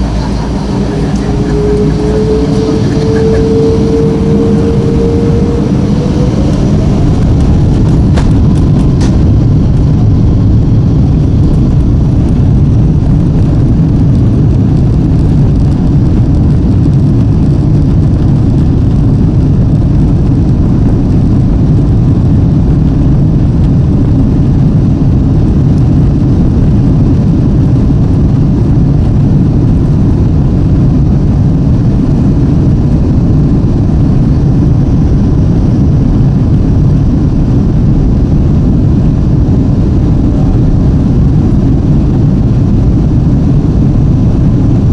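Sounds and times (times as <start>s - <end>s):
jet engine spool-up whine: 0.0s - 11.6s
jet engines deep rumble: 0.0s - 44.9s.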